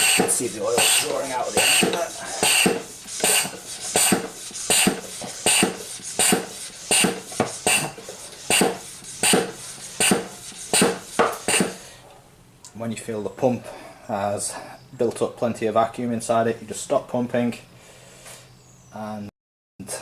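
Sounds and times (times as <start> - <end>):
hand pump strokes with air rush: 0.0 - 12.0.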